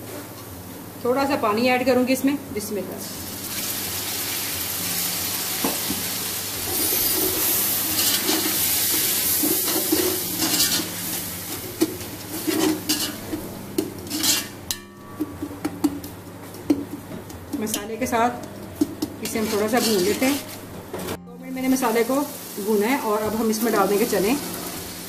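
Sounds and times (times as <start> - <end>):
masala sizzling in hot oil: 3.0 - 14.9, 18.8 - 20.7, 21.6 - 25.0
metal spoon scraping: 6.6 - 14.9, 17.7 - 20.6.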